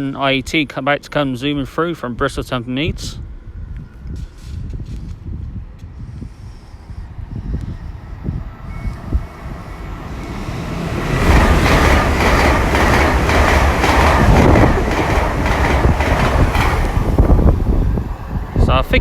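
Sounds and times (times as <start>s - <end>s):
train passing at speed: 6.0s - 19.0s
wheels clacking over rail joints: 9.2s - 18.6s.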